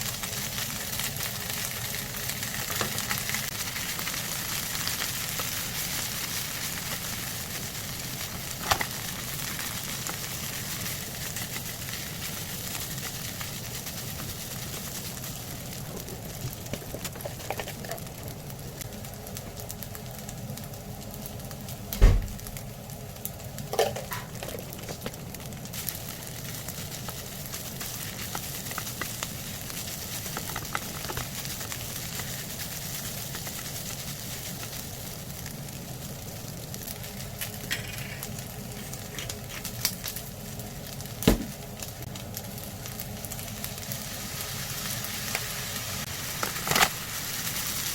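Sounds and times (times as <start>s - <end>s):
food sizzling in a frying pan: 0.0s - 47.9s
loud thump: 22.0s - 22.4s, 41.3s - 41.5s.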